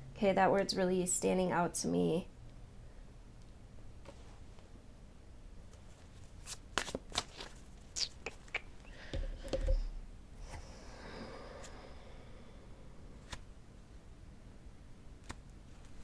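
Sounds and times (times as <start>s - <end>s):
cards being shuffled: 5.7s - 8.4s, 13.2s - 13.5s.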